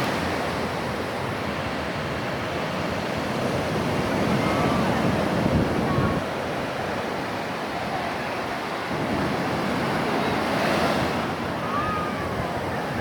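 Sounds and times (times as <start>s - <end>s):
ocean waves washing onto shore: 0.0s - 13.0s.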